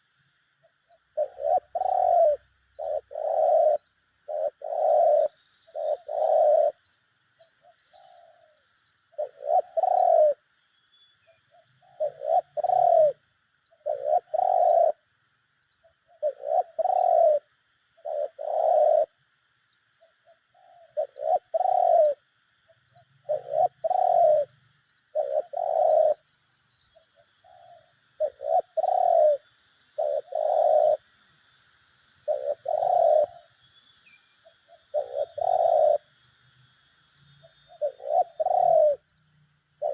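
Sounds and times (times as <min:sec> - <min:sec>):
small birds chirping: 0:00.0 - 0:39.9
doves cooing: 0:01.0 - 0:06.8, 0:07.6 - 0:08.6, 0:09.2 - 0:10.4, 0:11.6 - 0:13.2, 0:13.8 - 0:15.0, 0:16.2 - 0:19.2, 0:20.5 - 0:22.2, 0:23.2 - 0:24.5, 0:25.1 - 0:26.3, 0:27.4 - 0:31.0, 0:32.2 - 0:33.5, 0:34.4 - 0:36.2, 0:37.4 - 0:39.1.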